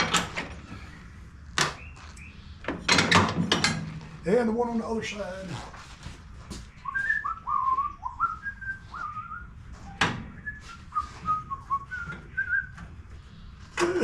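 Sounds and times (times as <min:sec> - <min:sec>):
person whistling a tune: 0:06.9 - 0:09.5, 0:10.4 - 0:12.8.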